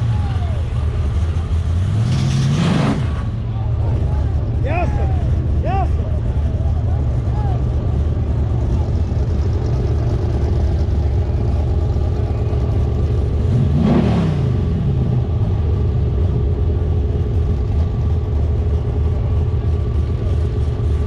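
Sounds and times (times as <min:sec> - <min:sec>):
car engine idling: 0:00.0 - 0:02.1, 0:03.0 - 0:21.0
engine revving: 0:01.0 - 0:04.3, 0:12.7 - 0:15.5.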